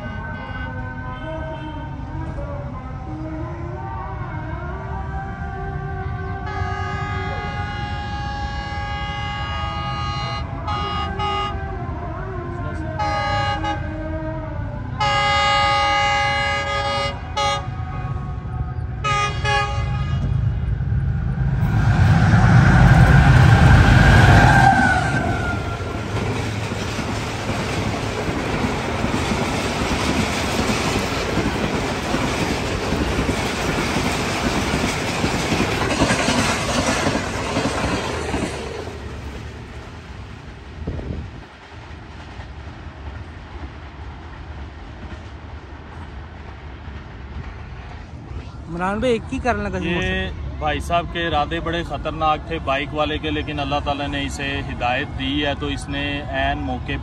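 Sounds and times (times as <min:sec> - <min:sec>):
locomotive horn blasts: 0:00.0 - 0:01.9, 0:06.4 - 0:11.7, 0:13.0 - 0:14.0, 0:15.0 - 0:18.2, 0:19.0 - 0:20.6
locomotive rumbling past: 0:12.5 - 0:57.0.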